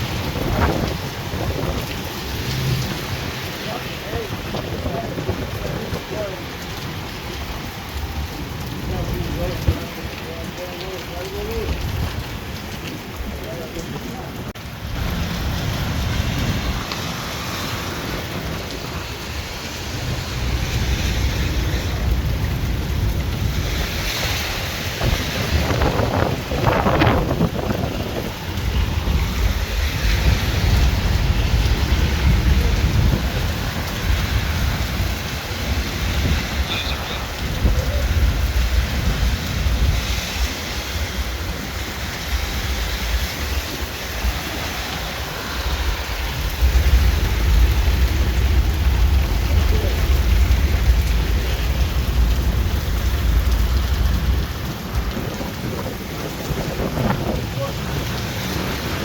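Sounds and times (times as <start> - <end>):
deep thunder rumble: 0.0 - 10.6, 14.3 - 59.0
heavy rain pouring: 0.0 - 59.0
low fluttering rumble: 41.0 - 59.0.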